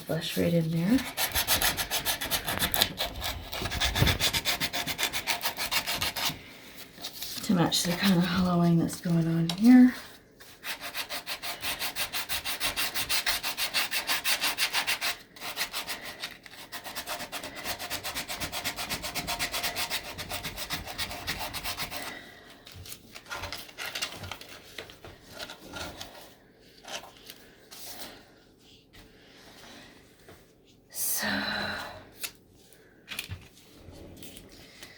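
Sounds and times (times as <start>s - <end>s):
sandpaper rubbing on wood: 10.6s - 16.1s.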